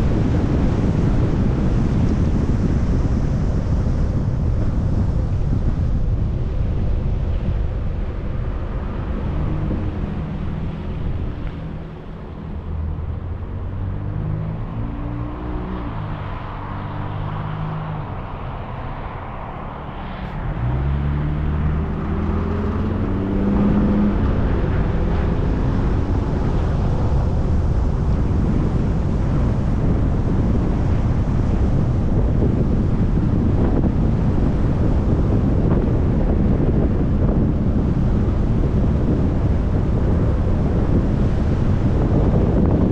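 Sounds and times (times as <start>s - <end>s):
car engine hum: 0.0s - 42.9s
road and wind rumble: 0.0s - 42.9s
car engine revving: 8.5s - 34.9s.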